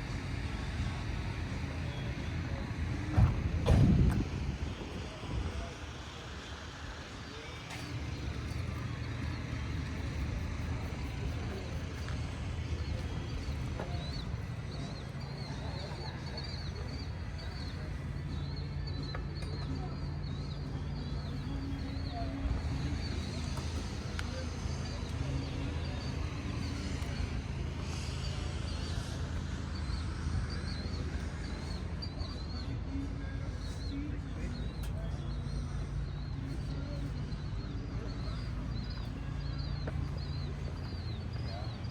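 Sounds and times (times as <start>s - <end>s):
car engine running: 0.0s - 31.8s.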